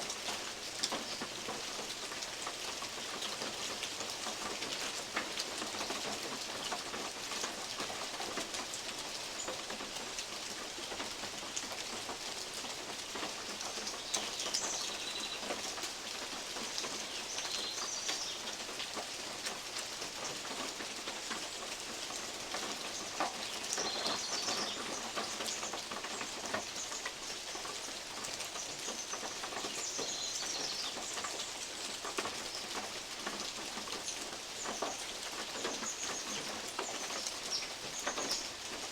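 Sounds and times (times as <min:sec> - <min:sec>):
steady rain: 0:00.0 - 0:38.9
birds chirping: 0:28.6 - 0:31.6.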